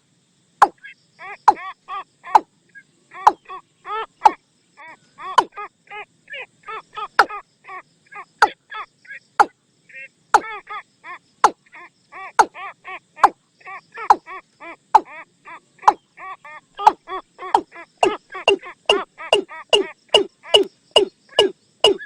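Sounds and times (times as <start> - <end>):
watercock calls: 1.4 - 1.7, 3.1 - 3.6, 4.2 - 4.4, 7.0 - 7.4, 15.0 - 15.2, 16.8 - 22.0.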